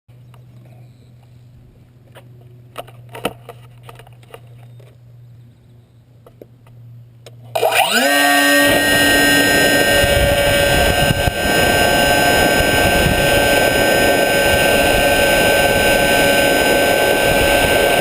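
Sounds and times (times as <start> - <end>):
low steady hum: 0.1 - 18.0
electric motor whine: 7.5 - 18.0.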